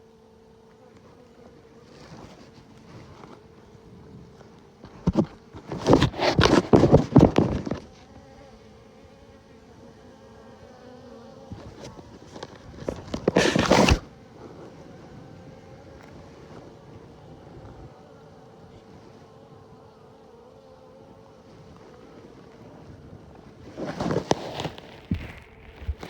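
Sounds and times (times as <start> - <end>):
honeybees buzzing: 0.0 - 26.0
loud rustling and scraping: 1.8 - 8.2, 11.5 - 15.2, 21.5 - 26.0.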